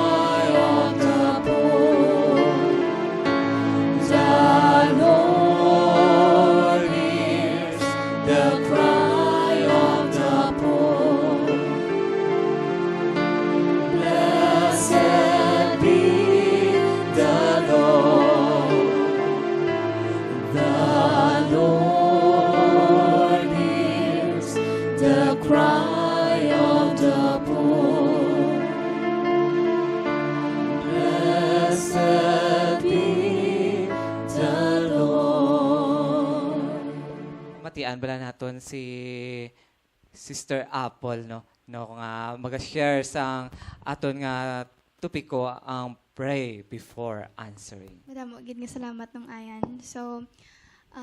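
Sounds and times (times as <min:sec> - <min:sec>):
instrumental accompaniment: 0:00.0 - 0:37.8
voices singing worship song: 0:00.0 - 0:38.0.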